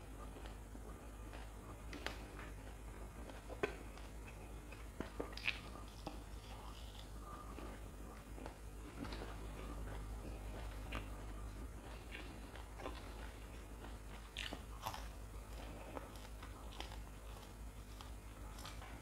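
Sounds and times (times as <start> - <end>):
chewing and biting fried food: 0.0 - 19.0
wet mouth sounds: 3.6 - 7.2.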